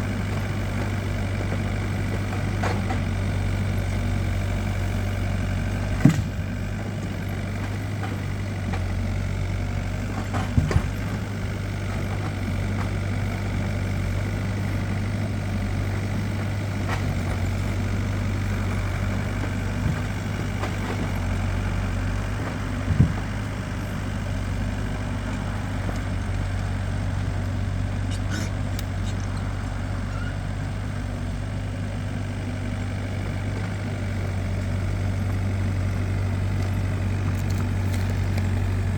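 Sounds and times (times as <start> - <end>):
vehicle engine idling: 0.0 - 38.9.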